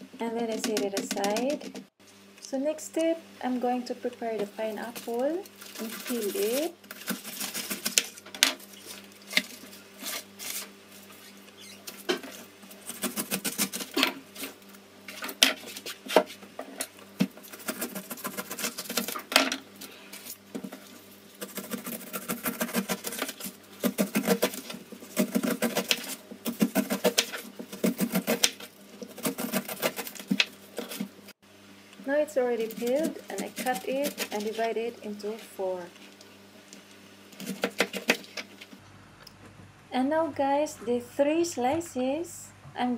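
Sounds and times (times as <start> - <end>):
knife cutting pineapple rind: 4.7 - 31.1, 32.4 - 35.3, 37.4 - 38.6.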